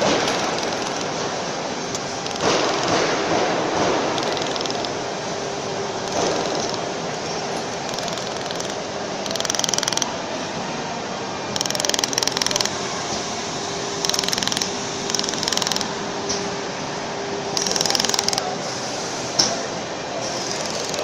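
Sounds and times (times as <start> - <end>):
steady machine hum: 0.0 - 21.0
laser welder ticking pulses: 14.1 - 15.9, 17.6 - 18.4.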